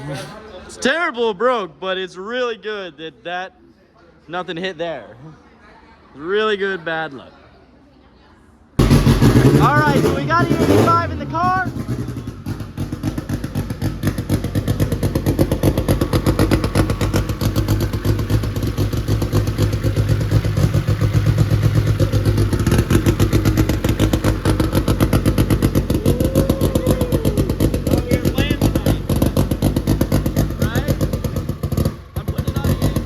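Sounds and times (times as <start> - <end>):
car engine pulsing: 8.8 - 33.0.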